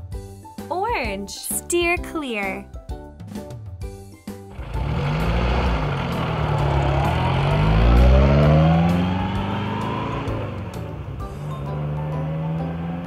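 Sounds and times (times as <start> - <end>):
vehicle engine revving: 4.5 - 13.0.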